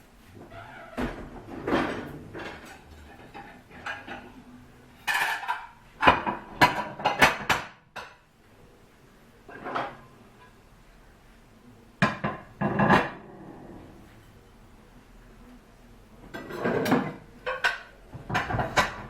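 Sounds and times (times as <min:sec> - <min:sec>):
dishes and cutlery clinking: 0:01.6 - 0:08.2, 0:09.5 - 0:10.6, 0:12.0 - 0:13.9, 0:16.2 - 0:19.0.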